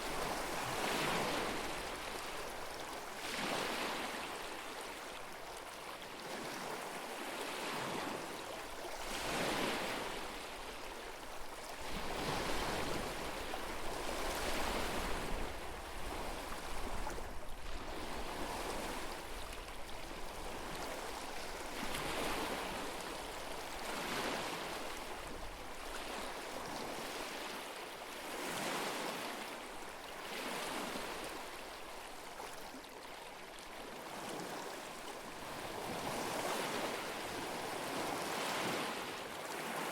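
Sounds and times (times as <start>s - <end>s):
lake waves lapping on shore: 0.0s - 39.9s.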